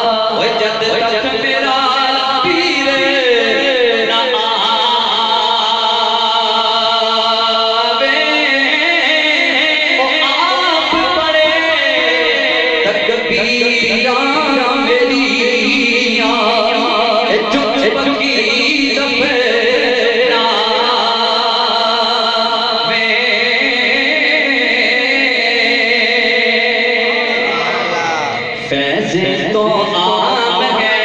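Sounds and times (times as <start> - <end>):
person singing: 27.1 - 31.0.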